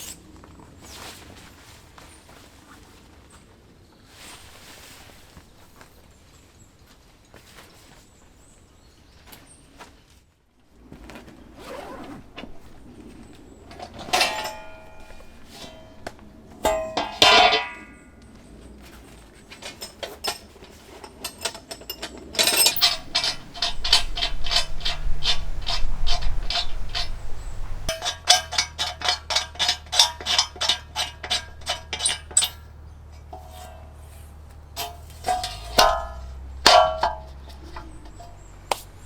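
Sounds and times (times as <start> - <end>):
steady low hum: 22.4 - 39.0.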